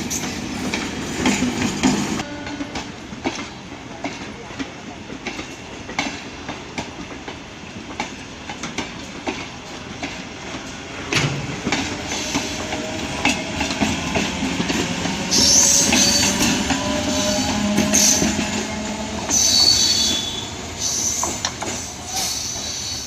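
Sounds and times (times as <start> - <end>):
train wheels clicking on rail joints: 0.0 - 23.0
high wheel squeal: 15.3 - 18.3, 19.3 - 23.0.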